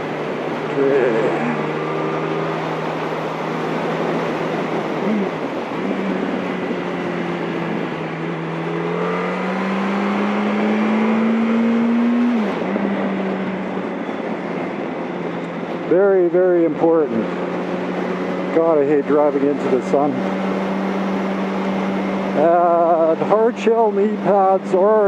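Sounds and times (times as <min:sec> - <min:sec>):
wind rushing past microphone: 0:00.0 - 0:18.7
motorcycle engine accelerating: 0:00.0 - 0:25.0.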